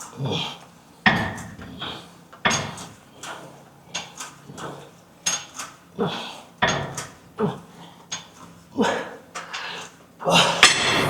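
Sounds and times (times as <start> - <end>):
gym weights clanking: 2.5 - 2.9, 6.6 - 7.2, 10.4 - 11.0.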